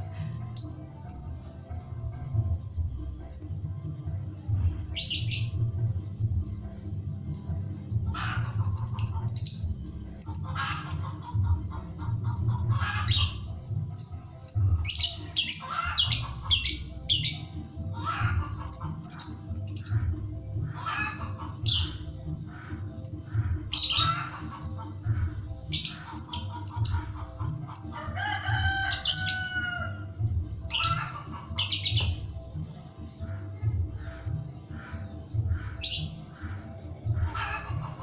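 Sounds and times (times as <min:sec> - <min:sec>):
lovebird chirps and squawks: 0:05.0 - 0:05.6, 0:08.1 - 0:11.3, 0:12.8 - 0:20.1, 0:20.7 - 0:24.6, 0:25.7 - 0:29.7, 0:30.7 - 0:32.3, 0:35.6 - 0:36.2, 0:37.0 - 0:38.0.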